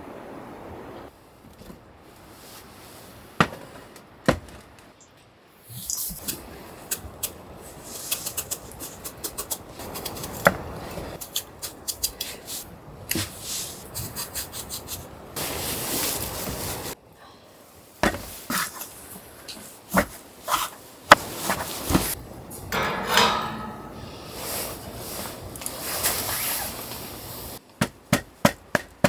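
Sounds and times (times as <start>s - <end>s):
rustling and scraping: 1.4s - 5.0s, 18.0s - 27.6s.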